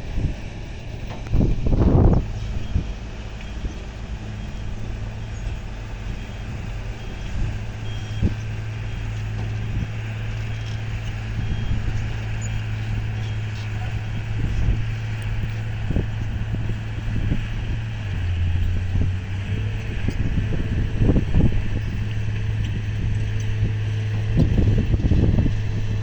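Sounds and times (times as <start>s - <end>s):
diesel engines running: 0.0s - 26.0s
faint reversing alarm beeping: 4.3s - 9.8s, 10.4s - 13.9s.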